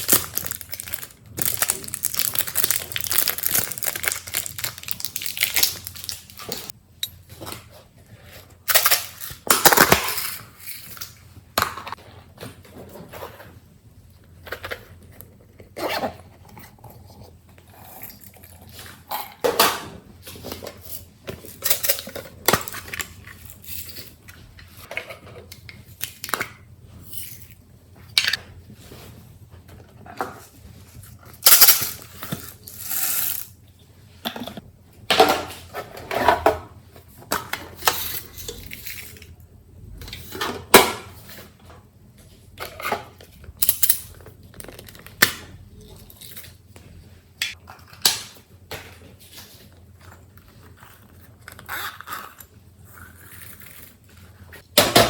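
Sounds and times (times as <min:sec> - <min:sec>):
slime squishing and crackling: 0:00.0 - 0:06.7.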